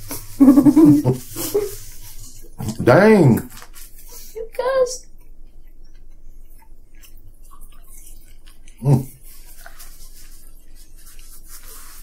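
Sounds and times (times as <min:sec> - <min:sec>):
quiet chewing: 0:05.1 - 0:11.7
man's short vocal sound: 0:08.8 - 0:09.2.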